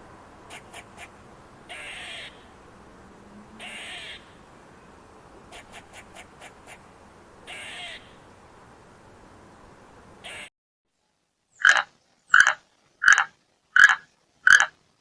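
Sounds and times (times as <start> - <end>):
bird harsh rasping calls: 0.5 - 1.1, 1.7 - 2.5, 3.6 - 4.4, 7.5 - 8.2, 10.2 - 10.5, 11.6 - 14.8.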